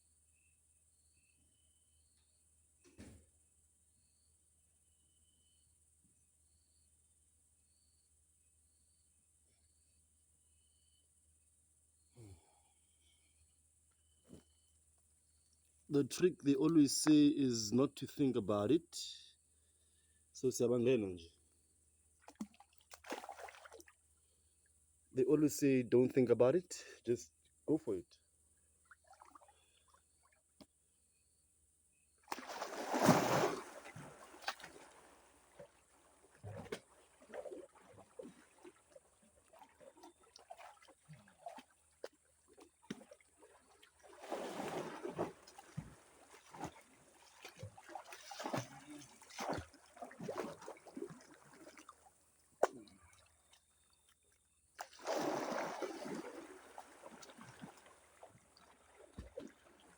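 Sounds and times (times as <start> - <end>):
person wading through water: 22.2 - 24.0, 28.8 - 30.5, 32.3 - 59.9
big water splash: 32.3 - 35.7, 44.0 - 51.8, 54.8 - 59.9
water dripping and trickling: 33.8 - 52.1.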